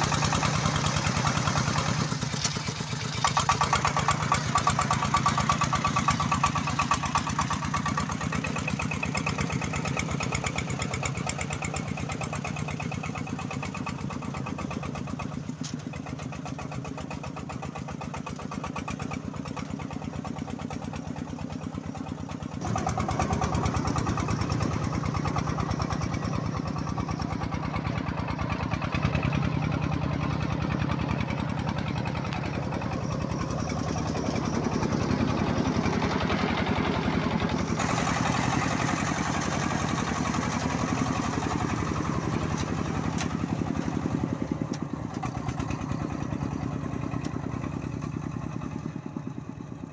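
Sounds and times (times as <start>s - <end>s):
diesel engine chugging: 0.0s - 49.9s.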